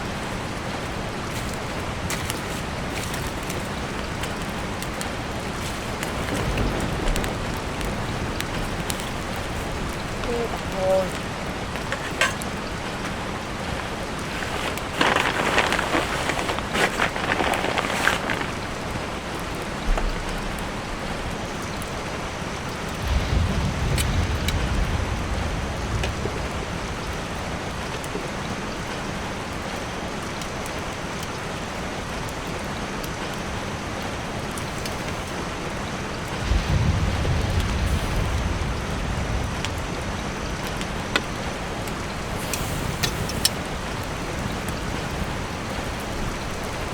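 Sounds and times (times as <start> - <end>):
low rumbles: 0.0 - 21.4, 22.8 - 28.3, 34.6 - 46.9
rain on a tarp: 0.0 - 46.9.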